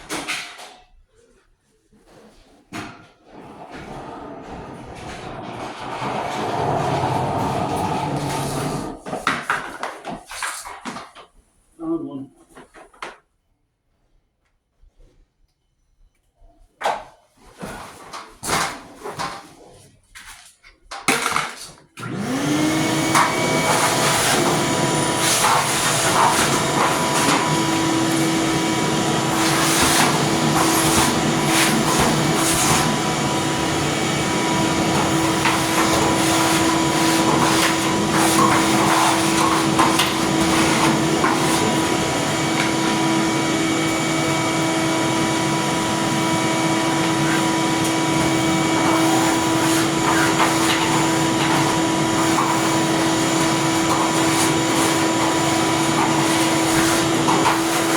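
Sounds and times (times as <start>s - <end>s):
vacuum cleaner running: 3.2s - 9.2s, 22.0s - 57.9s.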